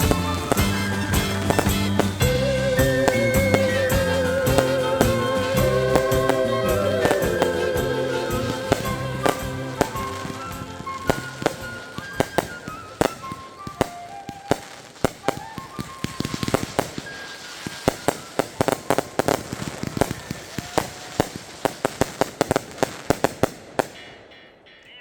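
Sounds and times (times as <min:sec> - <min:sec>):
faint music: 0:00.0 - 0:19.4
fireworks bangs: 0:00.0 - 0:24.7.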